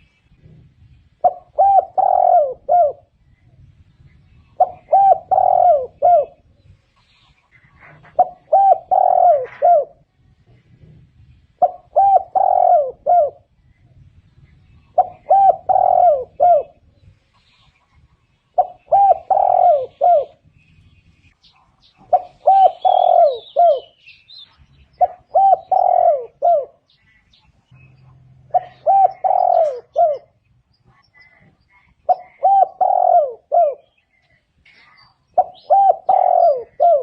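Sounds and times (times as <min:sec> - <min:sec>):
dove cooing: 0:00.0 - 0:03.5, 0:04.2 - 0:06.7, 0:07.5 - 0:10.1, 0:10.7 - 0:14.0, 0:14.6 - 0:17.2, 0:18.5 - 0:20.5, 0:22.0 - 0:24.0, 0:24.9 - 0:27.1, 0:28.4 - 0:34.0, 0:35.3 - 0:37.0.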